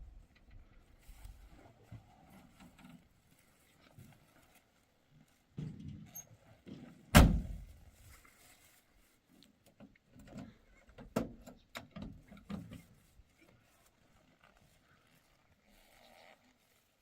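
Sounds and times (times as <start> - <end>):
loud thump: 7.2 - 7.6.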